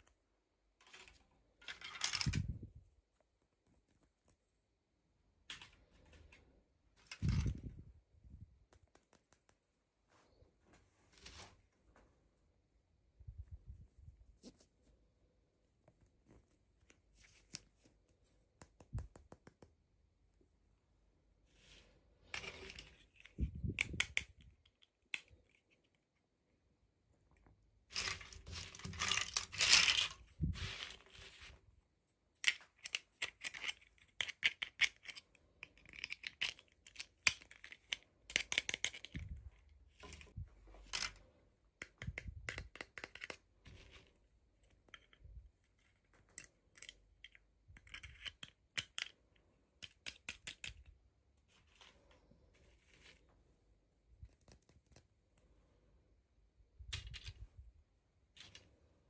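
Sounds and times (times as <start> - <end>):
sharp clicks and taps: 8.6 - 9.7, 17.5 - 19.9.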